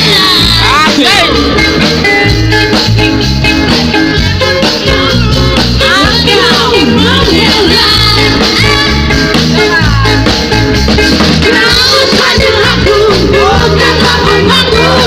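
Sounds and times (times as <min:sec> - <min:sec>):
band playing pop-rock song: 0:00.0 - 0:15.0
person singing: 0:11.4 - 0:15.0.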